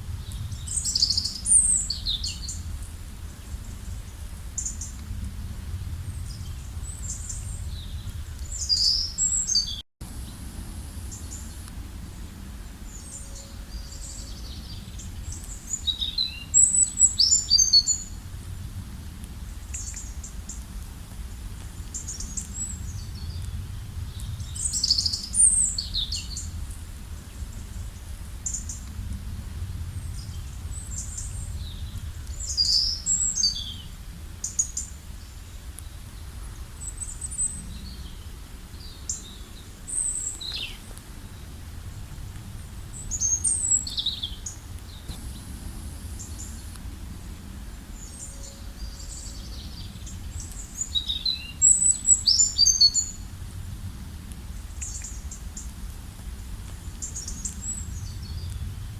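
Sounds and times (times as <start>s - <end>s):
wild birds singing: 0.2s - 5.0s, 6.0s - 18.7s, 21.5s - 28.9s, 29.7s - 53.3s, 54.6s - 55.7s, 56.8s - 58.7s
low background rumble: 17.8s - 52.2s.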